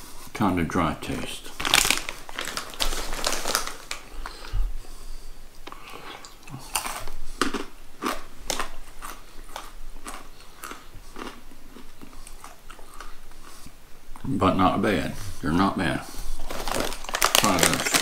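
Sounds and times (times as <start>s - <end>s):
snack bag rustling: 1.1s - 4.5s, 5.7s - 13.6s, 16.2s - 18.0s
crunchy chewing of peanuts: 1.6s - 4.4s, 5.7s - 13.7s, 16.4s - 18.0s.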